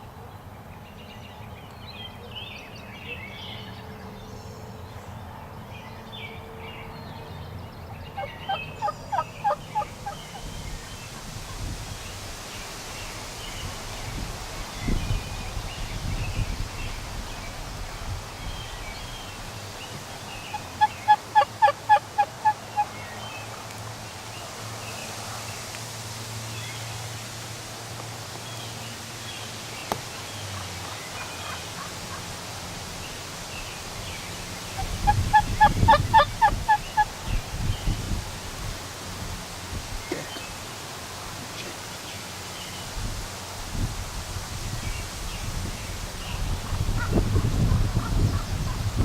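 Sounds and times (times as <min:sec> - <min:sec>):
turkey gobbling: 0:08.2 - 0:10.5, 0:20.5 - 0:22.9, 0:34.8 - 0:37.1.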